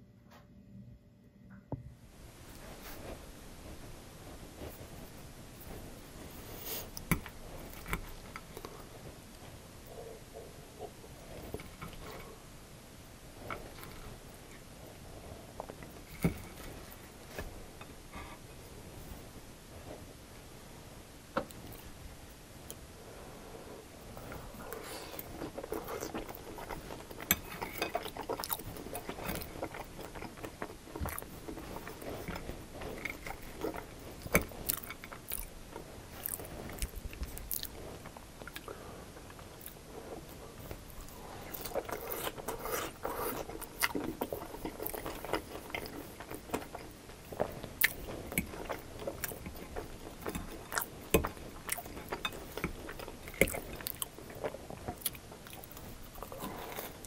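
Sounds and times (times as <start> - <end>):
wet chewing sounds: 24.0 - 57.0.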